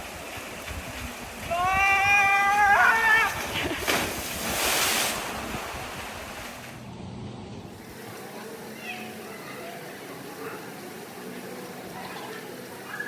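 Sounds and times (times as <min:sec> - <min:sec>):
sea surf: 0:00.0 - 0:06.9
wind noise on microphone: 0:00.0 - 0:07.7.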